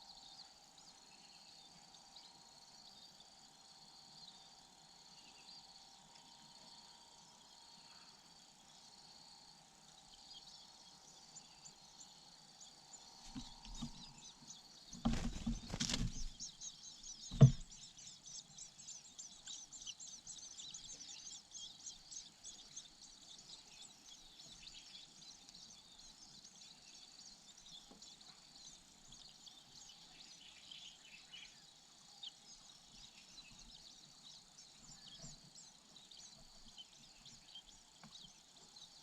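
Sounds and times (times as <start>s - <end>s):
insects droning: 0.0s - 39.0s
nestlings chirping: 13.2s - 25.6s
bumps and rustles: 14.9s - 16.4s, 17.3s - 17.8s.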